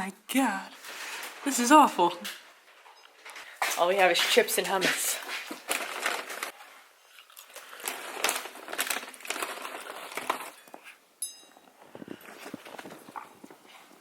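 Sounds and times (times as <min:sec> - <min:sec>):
chip bag crinkling: 0:05.2 - 0:11.0
crisp crunches: 0:05.4 - 0:11.0.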